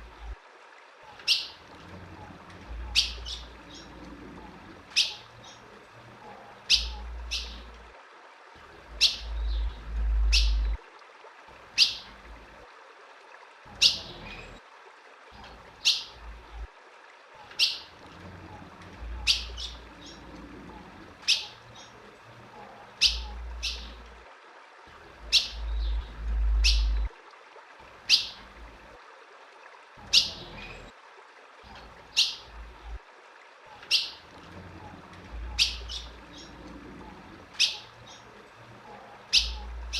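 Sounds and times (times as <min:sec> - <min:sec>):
bird chip calls: 0:01.1 - 0:01.6, 0:02.8 - 0:03.9, 0:04.9 - 0:05.6, 0:06.7 - 0:07.7, 0:09.0 - 0:10.8, 0:17.5 - 0:17.9, 0:19.2 - 0:20.3, 0:21.2 - 0:22.0, 0:23.0 - 0:24.0, 0:25.3 - 0:27.1, 0:28.1 - 0:28.4, 0:32.1 - 0:32.5, 0:33.8 - 0:34.2, 0:35.4 - 0:36.6, 0:37.6 - 0:38.3, 0:39.3 - 0:39.9
low rumble: 0:09.2 - 0:10.8, 0:25.5 - 0:27.1.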